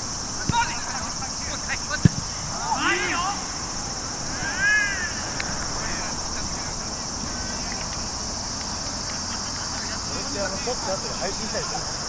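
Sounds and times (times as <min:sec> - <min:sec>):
insects chorus: 0:00.0 - 0:12.0
person shouting: 0:02.5 - 0:03.6, 0:04.3 - 0:06.1.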